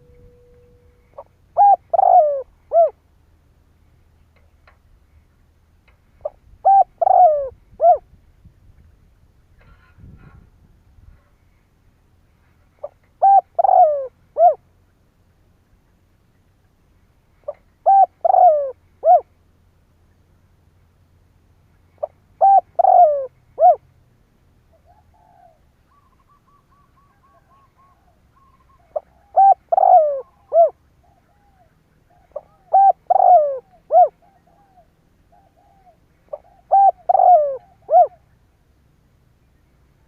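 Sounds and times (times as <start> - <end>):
dove cooing: 0.0 - 3.0, 6.2 - 8.0, 12.8 - 14.6, 17.4 - 19.3, 22.0 - 23.8, 24.7 - 38.3.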